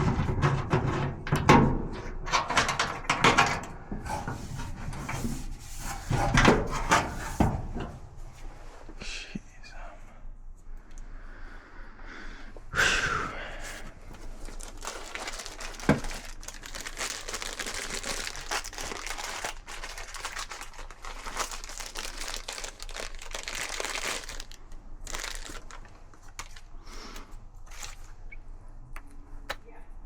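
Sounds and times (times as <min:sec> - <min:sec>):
crinkling rustling handling noise: 0:13.6 - 0:28.2.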